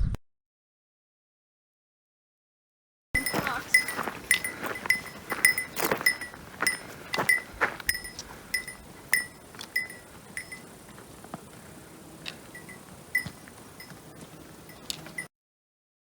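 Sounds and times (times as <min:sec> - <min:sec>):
hiking gear clinking: 0:03.2 - 0:15.3.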